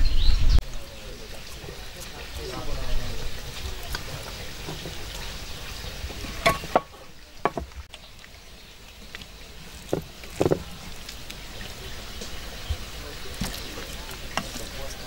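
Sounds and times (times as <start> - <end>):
cooking hiss: 0.6 - 15.0
utensils knocking on dishes: 6.4 - 7.7.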